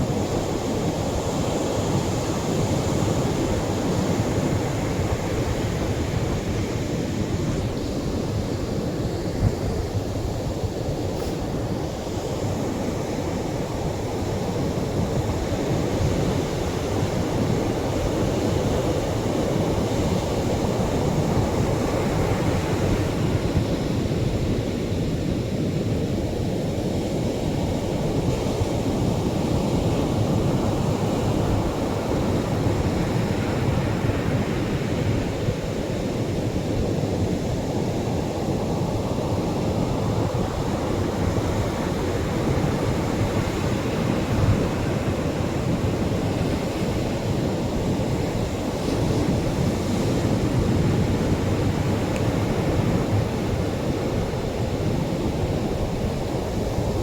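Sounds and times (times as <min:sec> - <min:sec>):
waves breaking on shore: 0:02.0 - 0:14.6.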